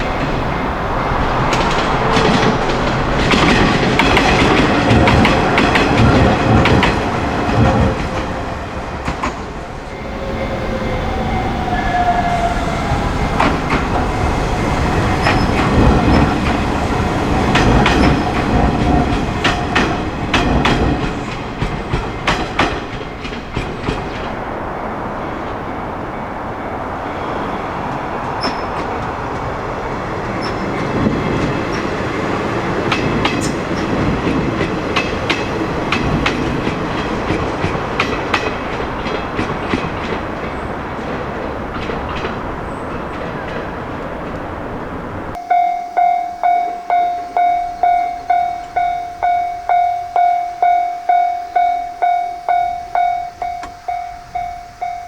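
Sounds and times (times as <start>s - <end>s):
level-crossing warning bell: 0.0s - 6.2s, 9.6s - 24.4s, 45.3s - 55.0s
train rushing noise: 0.0s - 55.0s.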